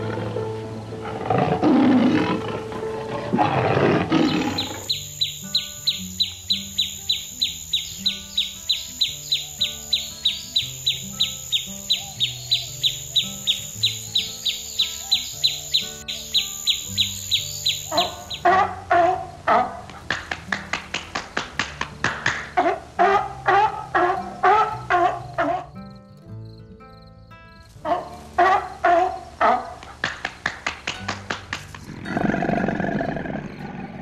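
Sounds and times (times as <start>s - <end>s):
rough roar-like animal call: 0.0s - 4.9s, 31.8s - 34.0s.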